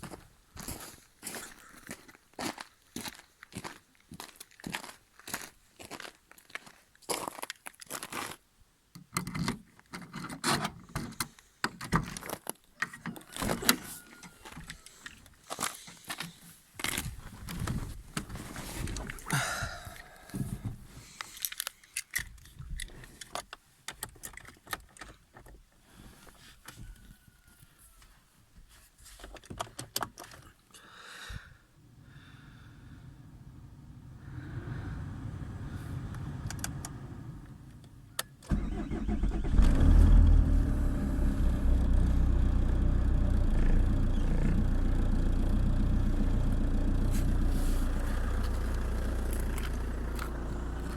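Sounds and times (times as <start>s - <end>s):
scraping and handling noises: 9.2s - 19.3s, 20.4s - 25.6s.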